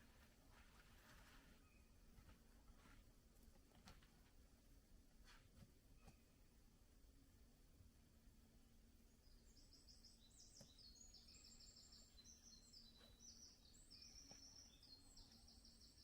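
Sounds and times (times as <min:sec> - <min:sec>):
faint songbird trills: 0:01.6 - 0:02.0, 0:09.1 - 0:16.0.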